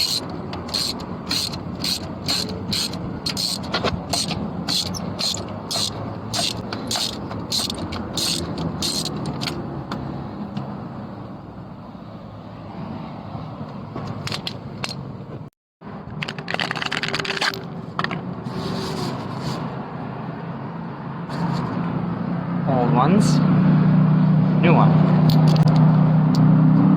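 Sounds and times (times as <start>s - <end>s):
ratchet wrench clicking: 0.0s - 9.6s
metal scraping and handling: 0.0s - 9.7s, 16.2s - 19.8s, 21.3s - 21.9s.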